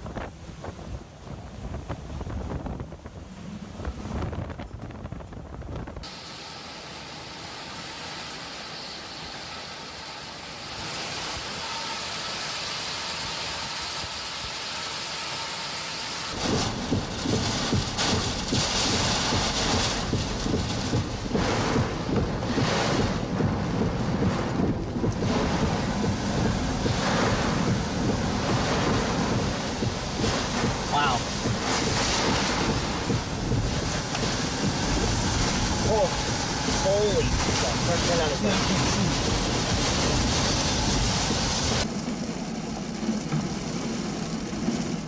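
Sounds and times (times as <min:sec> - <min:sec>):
gusting wind buffeting microphone: 0:00.0 - 0:06.2, 0:16.3 - 0:45.0
rain hissing: 0:05.9 - 0:45.0.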